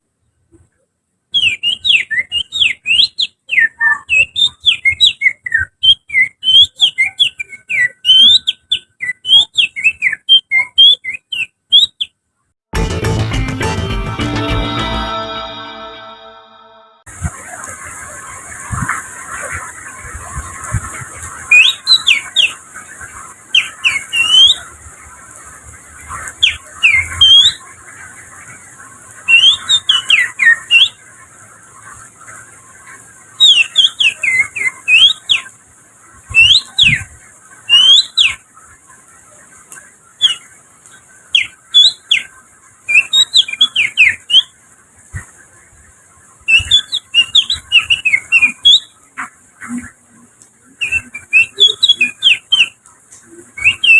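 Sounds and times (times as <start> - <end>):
finger whistling birdsong: 1.4 - 12.1, 29.3 - 31.0, 46.5 - 48.9, 50.8 - 52.7, 53.6 - 53.9
steady hiss: 17.1 - 53.9.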